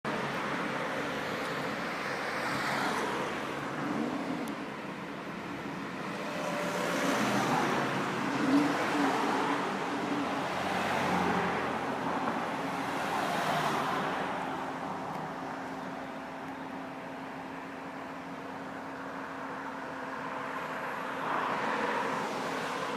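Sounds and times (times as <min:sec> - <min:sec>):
traffic noise: 0:00.0 - 0:22.9.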